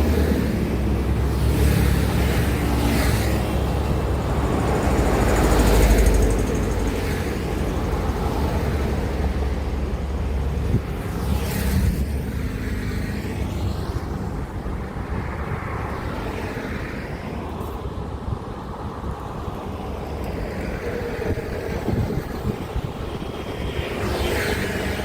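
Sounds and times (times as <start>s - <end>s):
large vehicle diesel rumble: 0.0s - 13.0s
tyre hiss of passing vehicle: 0.0s - 25.0s.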